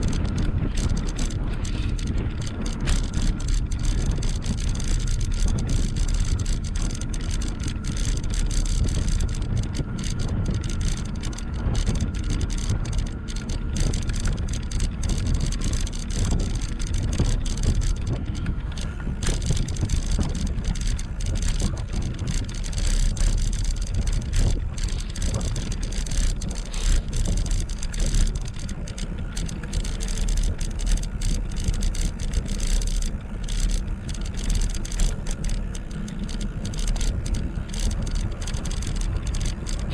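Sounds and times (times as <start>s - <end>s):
faint steady whine: 0.0s - 39.9s
tyre and road noise: 0.0s - 39.9s
wind rumbling on microphone: 0.0s - 39.9s.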